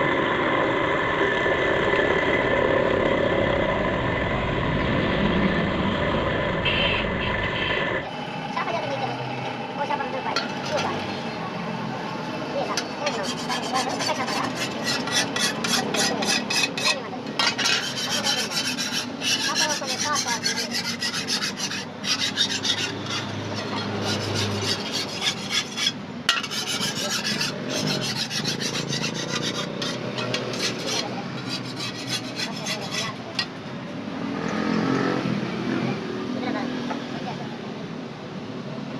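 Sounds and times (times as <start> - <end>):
hand file rasping on steel blade: 13.0 - 33.5.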